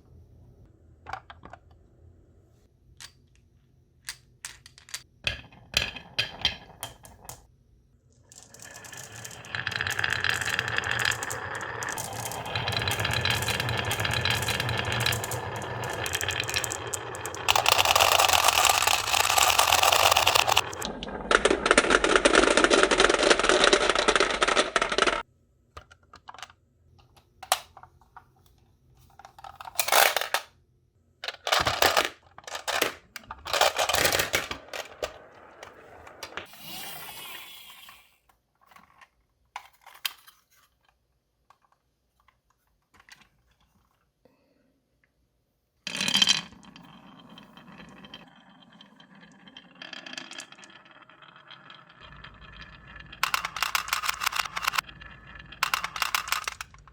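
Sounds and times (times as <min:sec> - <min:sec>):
marbles rolling and clattering: 0:04.1 - 0:07.5, 0:08.1 - 0:25.3, 0:29.4 - 0:30.4, 0:31.3 - 0:38.1, 0:45.9 - 0:56.9
marble clicks and knocks: 0:08.3 - 0:25.2, 0:45.9 - 0:56.9.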